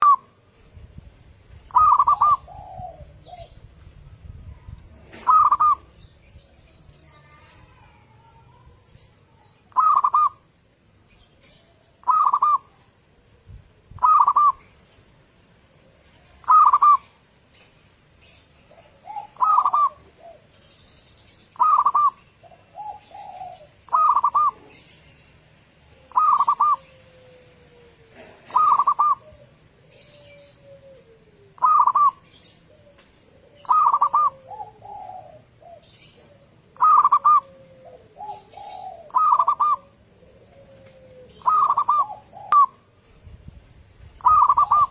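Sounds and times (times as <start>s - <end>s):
dove cooing: 0.0s - 0.5s, 1.5s - 10.5s, 11.2s - 15.0s, 15.6s - 17.2s, 18.2s - 25.2s, 25.8s - 44.9s
small birds chirping: 0.0s - 44.9s.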